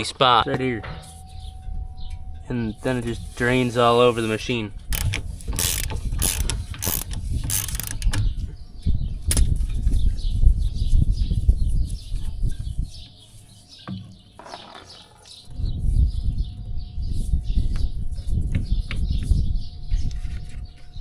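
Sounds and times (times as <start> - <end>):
low rumbling noise: 0.0 - 11.8
ratchet wrench clicking: 4.9 - 8.2.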